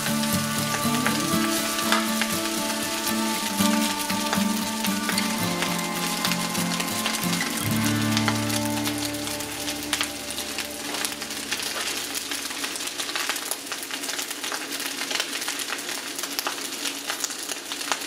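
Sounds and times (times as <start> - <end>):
music: 0.0 - 12.8
rice sizzling in a wok: 0.0 - 18.0.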